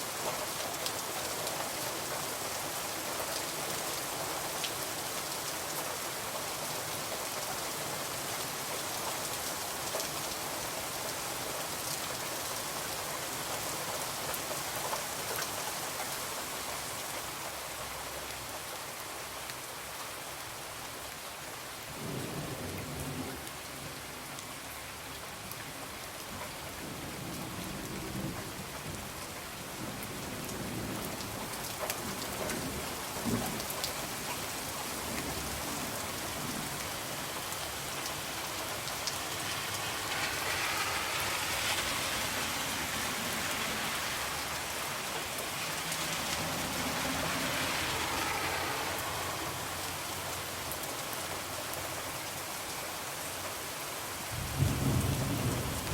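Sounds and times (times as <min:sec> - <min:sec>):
steady rain: 0:00.0 - 0:55.9
rumble of thunder: 0:54.4 - 0:55.9.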